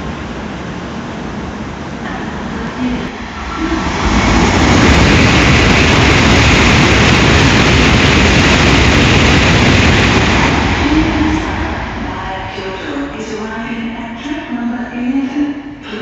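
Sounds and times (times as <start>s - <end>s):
train passing at speed: 0.0s - 16.0s.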